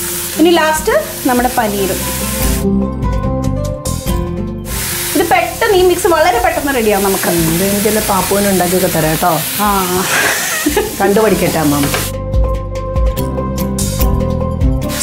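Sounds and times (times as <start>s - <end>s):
vegetables sizzling in a pan: 0.0s - 2.7s, 4.6s - 12.1s
music with a steady beat: 2.2s - 4.8s, 11.5s - 15.0s.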